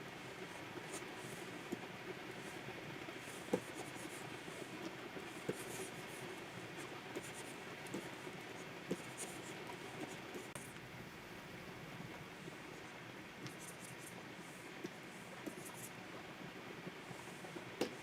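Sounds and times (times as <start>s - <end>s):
stylus scratching on pen tablet: 0.8s - 10.7s, 13.5s - 14.2s, 15.4s - 16.0s.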